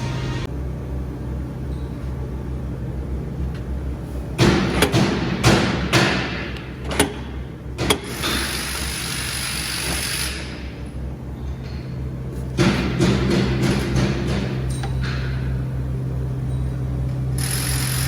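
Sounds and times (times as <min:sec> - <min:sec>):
sharp knocks and clanks: 0:04.4 - 0:08.9, 0:11.4 - 0:15.6.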